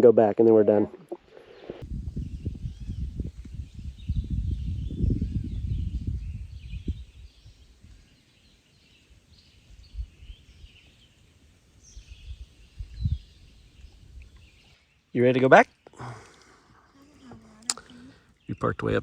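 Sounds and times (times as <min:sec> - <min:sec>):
faint bird chirps: 0:01.5 - 0:11.2.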